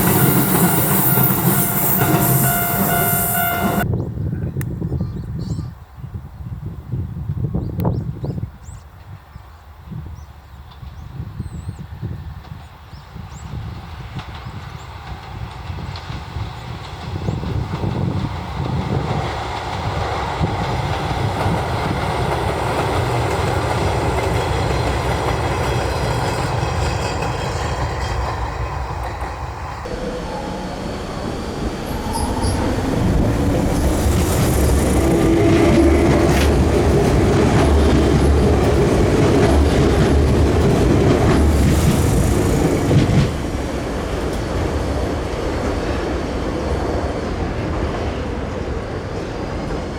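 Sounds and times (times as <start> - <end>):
train whine: 0.0 - 4.0, 14.0 - 49.9
electric train rumbling by: 0.0 - 4.1, 10.0 - 49.9
wheels clattering over rail joints: 15.1 - 45.8.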